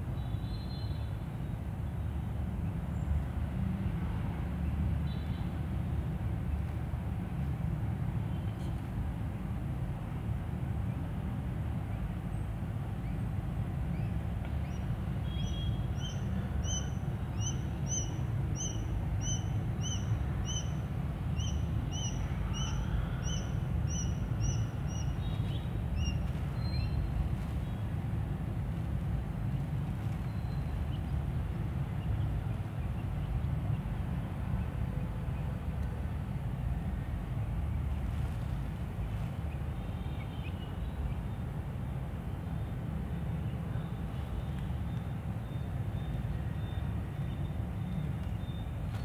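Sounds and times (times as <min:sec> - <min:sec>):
steady low rumble: 0:05.7 - 0:39.9.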